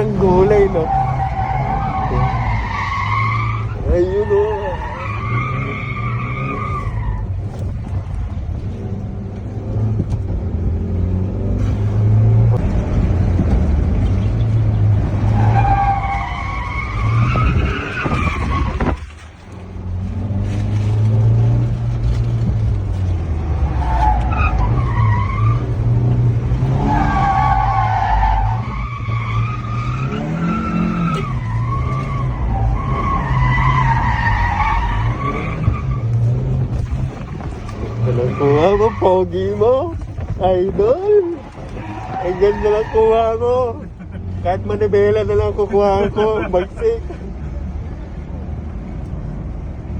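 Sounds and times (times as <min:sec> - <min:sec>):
tyres squealing: 0:00.0 - 0:07.4, 0:14.4 - 0:19.1, 0:23.0 - 0:46.7.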